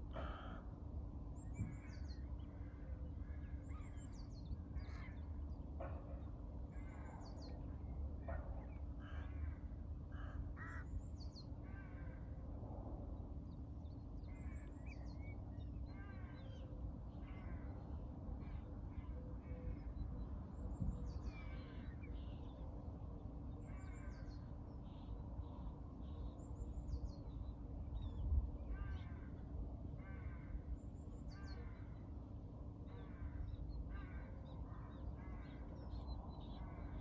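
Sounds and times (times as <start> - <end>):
harsh caw-like bird calls: 0.0 - 0.8, 1.6 - 4.0, 4.8 - 5.4, 8.3 - 11.0, 11.6 - 12.4, 15.8 - 19.9, 23.6 - 24.5, 28.6 - 32.1, 32.9 - 37.0
low background rumble: 0.0 - 37.0.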